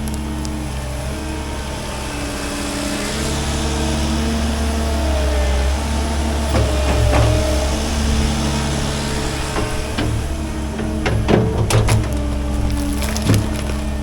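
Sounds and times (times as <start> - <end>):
heavy equipment engine running: 0.0 - 14.0
sharp knocks: 6.5 - 14.0.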